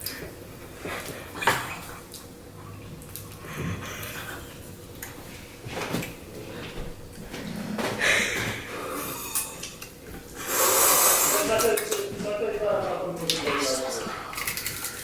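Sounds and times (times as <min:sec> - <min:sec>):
mouth noises: 0:10.4 - 0:12.0
chewing: 0:14.1 - 0:15.0.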